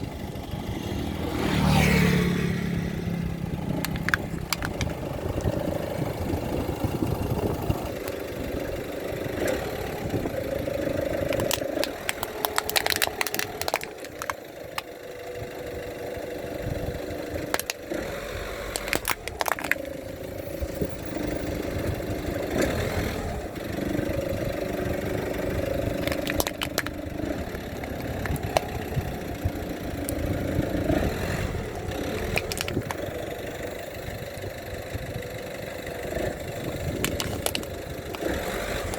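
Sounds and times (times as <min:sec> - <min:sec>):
car engine running slowly: 0:00.0 - 0:38.9
tyres crushing objects: 0:03.6 - 0:05.5, 0:10.7 - 0:14.9, 0:17.4 - 0:20.8, 0:25.6 - 0:29.1, 0:31.8 - 0:33.1, 0:36.9 - 0:38.9.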